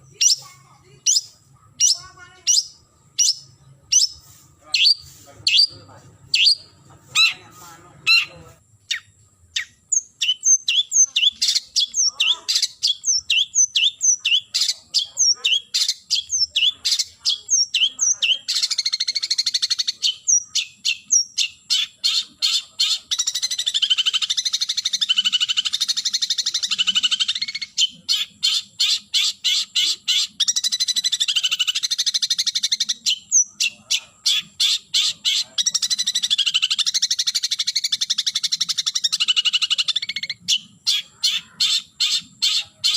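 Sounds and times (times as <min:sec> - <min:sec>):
bird harsh rattling chatter: 0:14.4 - 0:20.1, 0:33.6 - 0:42.9.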